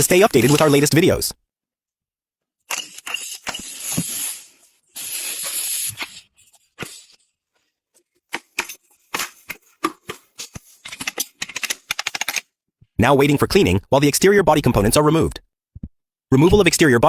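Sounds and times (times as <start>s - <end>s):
hissing spray: 3.0s - 7.1s.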